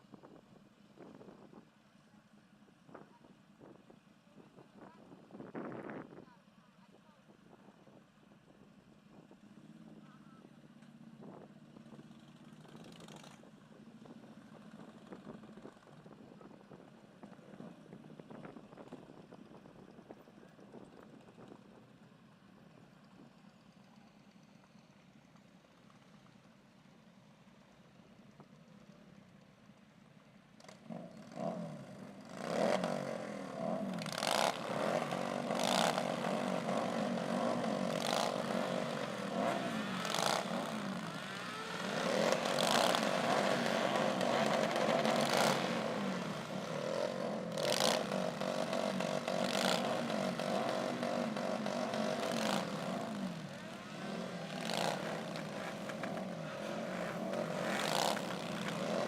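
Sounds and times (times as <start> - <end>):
motorcycles revving past: 30.6 - 59.0.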